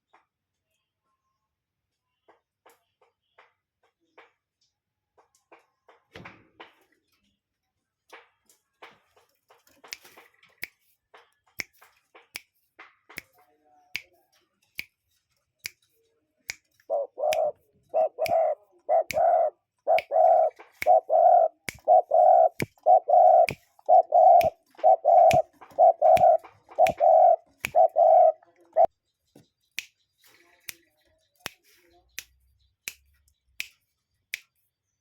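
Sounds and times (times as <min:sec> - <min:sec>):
bird hooting: 0:16.9 - 0:28.9.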